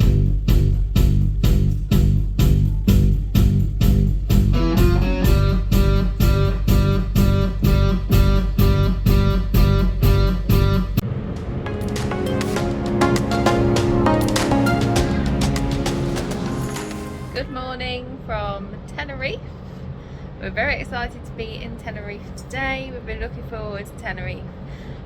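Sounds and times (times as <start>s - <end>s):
upbeat guitar band music: 4.3s - 11.0s, 11.8s - 17.4s.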